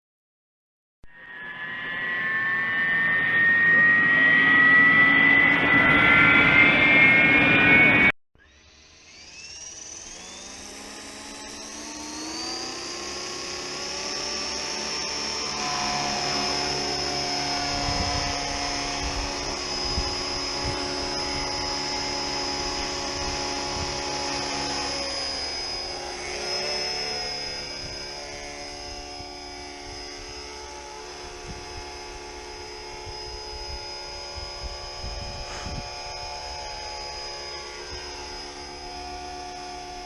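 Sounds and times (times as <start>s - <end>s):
helicopter rotor: 1.2s - 40.0s
model helicopter motor whine: 1.2s - 40.0s.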